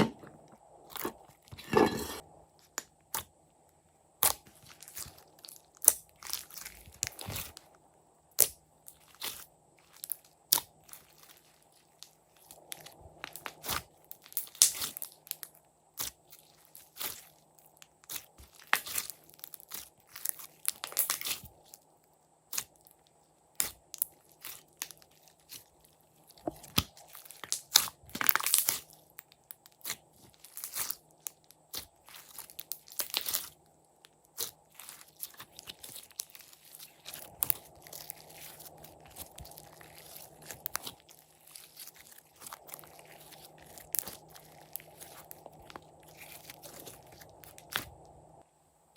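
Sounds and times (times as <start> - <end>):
slime kneaded by hand: 4.2 - 7.7, 8.3 - 21.8, 23.6 - 48.4
sticky pops and crackles: 12.0 - 15.4.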